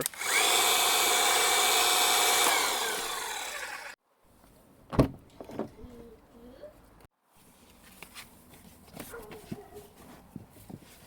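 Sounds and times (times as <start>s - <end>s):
pump motor whine: 0.0s - 4.0s.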